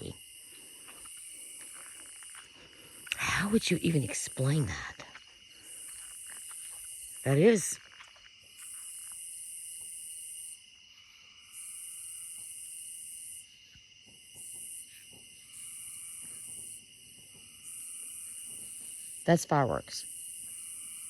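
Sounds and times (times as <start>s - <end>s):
cricket trill: 0.0s - 21.0s
shrill insect buzzing: 14.3s - 16.9s, 17.5s - 19.4s, 20.0s - 21.0s.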